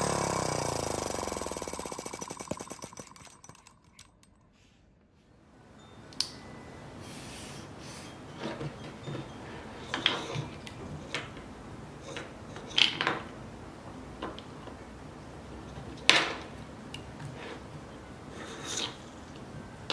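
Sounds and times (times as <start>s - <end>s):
small hard objects clicking: 0.0s - 4.4s.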